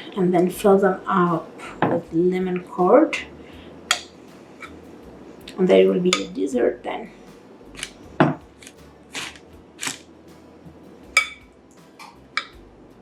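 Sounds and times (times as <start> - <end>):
utensils scraping: 3.9 - 12.6.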